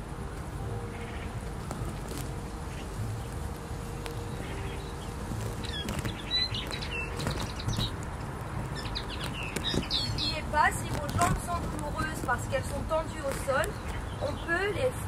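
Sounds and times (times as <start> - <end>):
steady low background rumble: 0.0 - 15.0
small birds chirping: 0.8 - 15.0.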